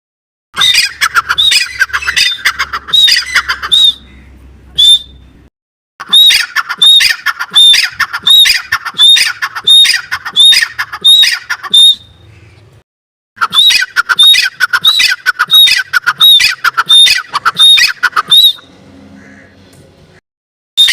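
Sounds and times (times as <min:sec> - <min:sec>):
francolin calling: 0:00.6 - 0:05.2, 0:13.4 - 0:19.5.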